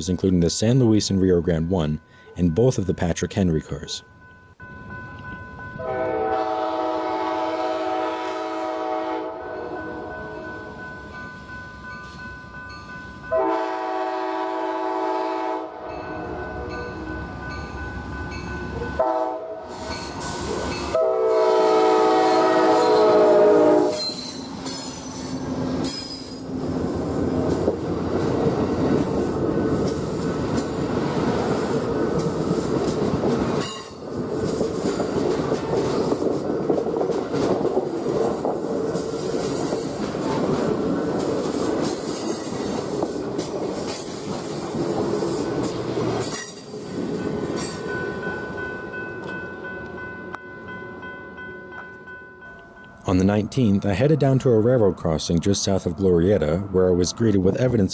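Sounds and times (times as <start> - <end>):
locomotive air horn: 5.8 - 9.8, 13.3 - 16.0, 19.0 - 19.8, 20.5 - 24.5
train wheels clattering on rails: 23.9 - 50.0.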